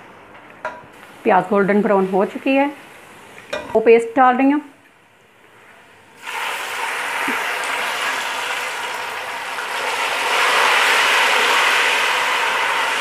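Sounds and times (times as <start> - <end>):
paste sizzling in hot oil: 6.2 - 13.0.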